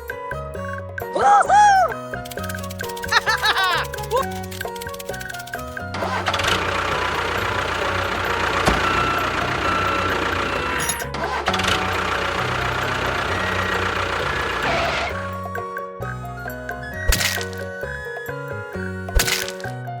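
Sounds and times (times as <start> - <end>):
background music: 0.0 - 20.0
small engine running: 2.0 - 17.9.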